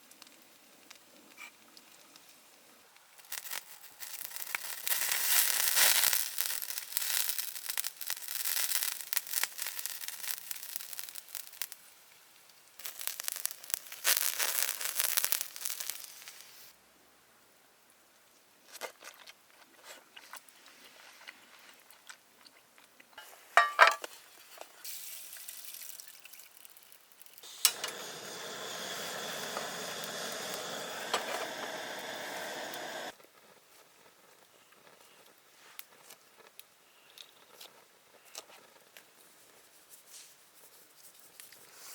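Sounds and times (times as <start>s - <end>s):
campfire crackling and crunching: 3.1s - 16.7s, 25.5s - 35.1s
frying sizzle: 3.2s - 12.0s, 12.8s - 16.7s, 23.2s - 24.0s, 24.8s - 33.2s.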